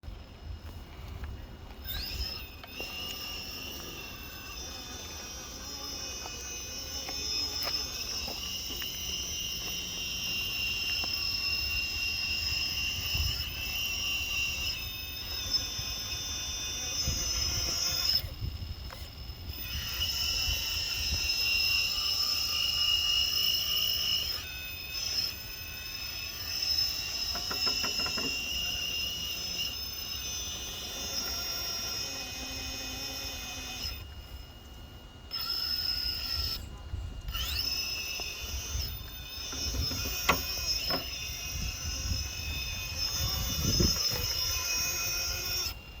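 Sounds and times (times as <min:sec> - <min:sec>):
electric motor whining: 0:00.1 - 0:46.0.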